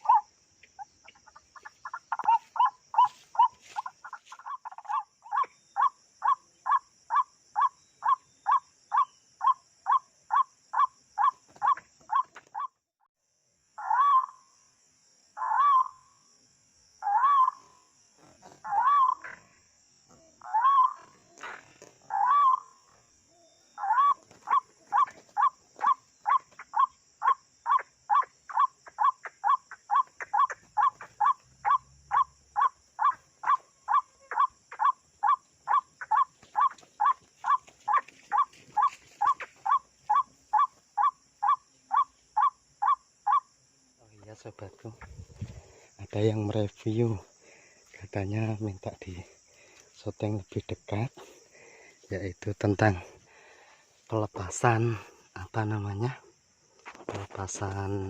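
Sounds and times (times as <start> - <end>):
waterhen calling: 0.0 - 12.7, 17.0 - 17.6, 18.6 - 19.4, 20.5 - 22.9, 23.8 - 43.4.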